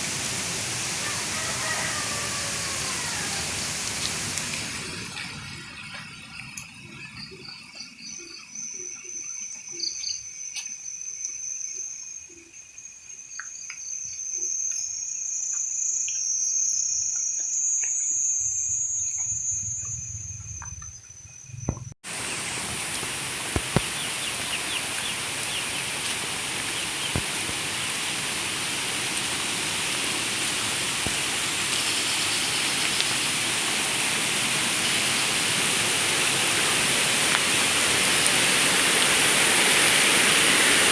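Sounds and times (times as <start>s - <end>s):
rushing water hiss: 0.0s - 7.3s, 22.0s - 40.9s
insects buzzing: 1.0s - 40.9s.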